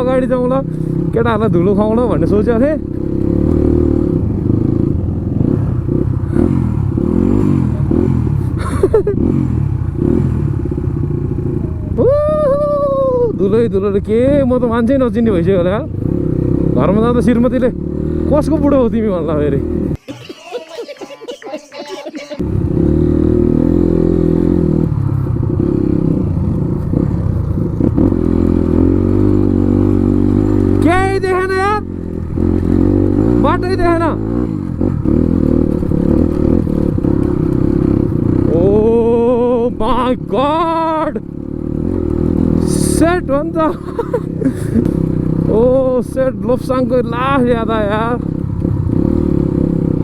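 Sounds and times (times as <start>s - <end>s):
motorcycle engine revving: 0.0s - 20.0s, 22.4s - 50.0s
knocks and clatter from road: 24.6s - 29.6s, 34.8s - 38.4s.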